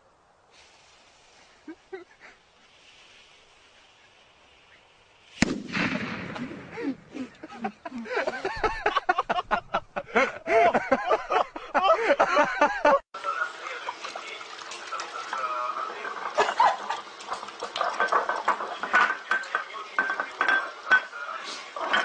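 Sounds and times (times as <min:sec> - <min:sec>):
loud bang: 0:05.4 - 0:07.1.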